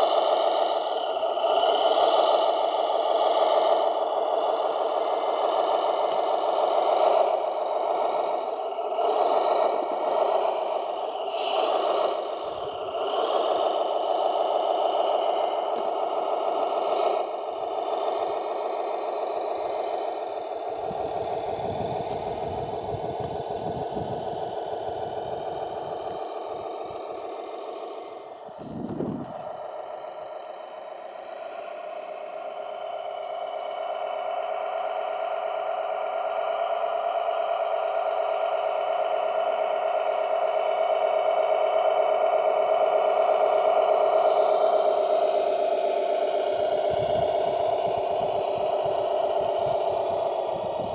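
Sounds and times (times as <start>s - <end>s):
motor and gearbox whine: 0.0s - 50.9s
electric motor whining: 20.7s - 29.8s, 43.0s - 50.9s
low clattering rumble: 28.5s - 30.1s.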